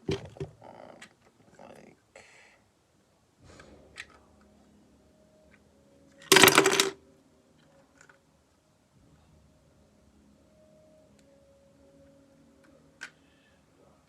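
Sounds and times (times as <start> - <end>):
plastic pieces clattering: 6.3 - 7.0.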